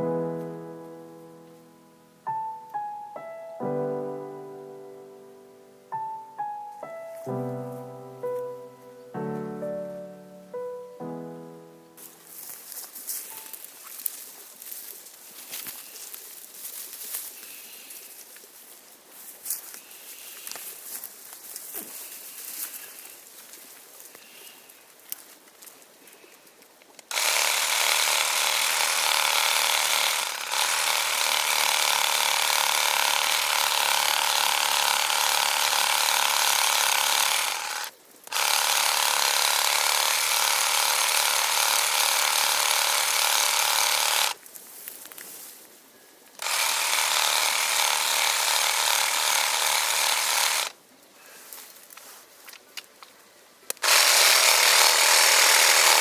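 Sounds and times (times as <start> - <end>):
reciprocating saw cutting wood: 27.1 - 44.4, 46.4 - 50.8, 53.8 - 56.0.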